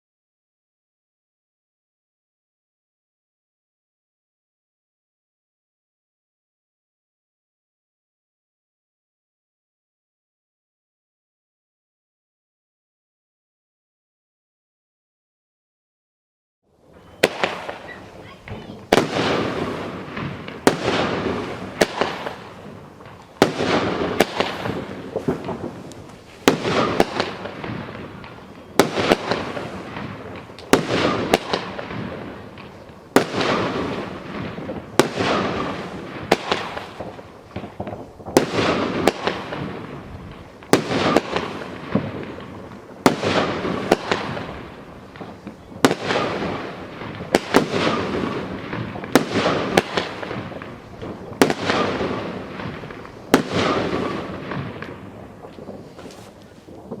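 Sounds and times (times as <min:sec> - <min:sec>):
fireworks banging and crackling: 0:16.8 - 0:57.0.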